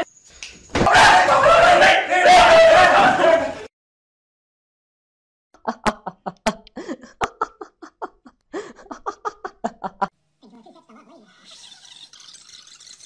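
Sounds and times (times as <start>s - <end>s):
young man laughing: 5.6s - 10.1s.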